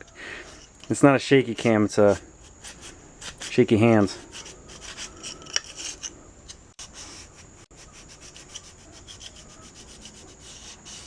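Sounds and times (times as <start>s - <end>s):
scouring pad scrubbing metal: 6.8s - 11.0s.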